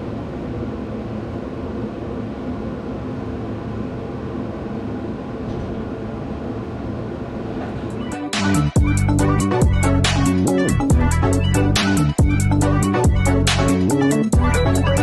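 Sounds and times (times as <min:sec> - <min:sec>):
electronic music with heavy beat: 0:07.9 - 0:15.0.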